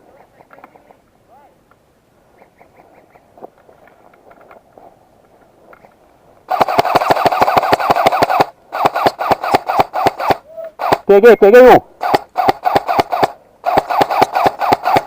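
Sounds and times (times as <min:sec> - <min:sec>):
airsoft rifle automatic fire: 0:06.5 - 0:11.3, 0:12.0 - 0:15.0.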